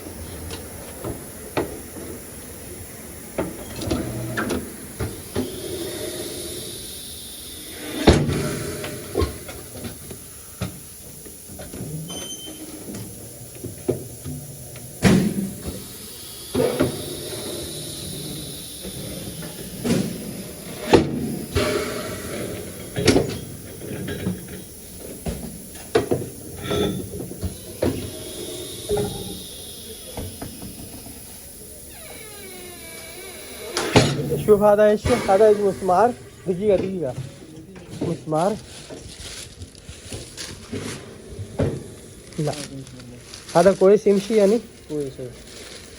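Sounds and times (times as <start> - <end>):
steady hiss: 0.0 - 37.2
knocks and clanks: 18.9 - 28.2.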